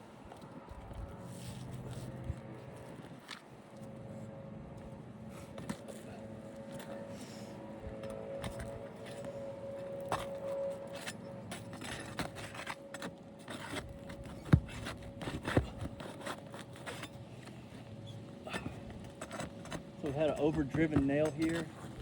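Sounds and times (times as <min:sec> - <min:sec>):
tool scraping under roof shingles: 0:05.2 - 0:22.0.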